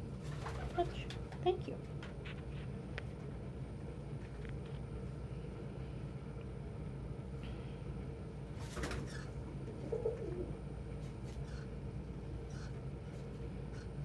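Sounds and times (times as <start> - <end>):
steady low hum: 0.0 - 14.0
pigeon cooing: 9.1 - 10.7.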